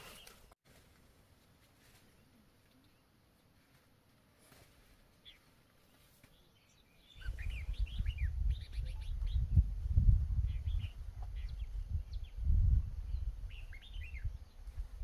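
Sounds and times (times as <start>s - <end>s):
small birds chirping: 1.9s - 15.0s
low rumble on microphone: 7.2s - 15.0s.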